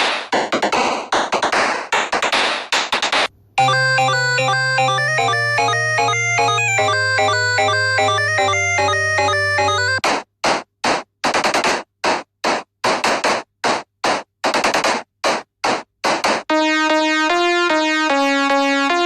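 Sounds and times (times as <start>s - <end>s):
synth melody: 3.6s - 10.0s, 16.5s - 19.0s.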